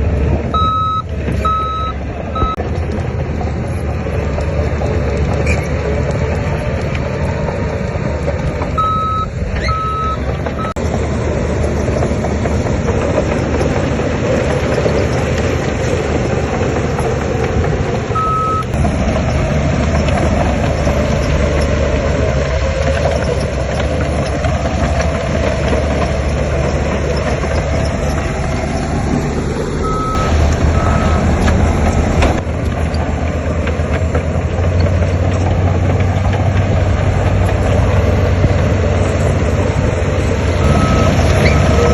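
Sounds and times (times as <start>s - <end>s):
heavy diesel machinery running: 0.0s - 41.9s
reversing alarm beeps: 0.6s - 2.6s, 8.8s - 10.8s, 18.2s - 18.7s, 29.8s - 31.4s, 40.6s - 41.9s.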